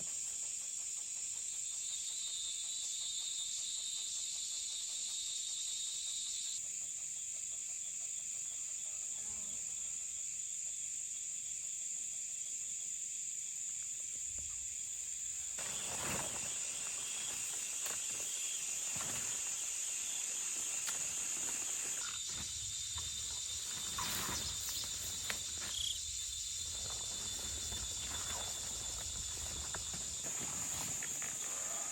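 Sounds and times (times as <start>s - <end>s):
insects shrilling: 14.4s - 31.9s
rustling: 15.5s - 31.9s.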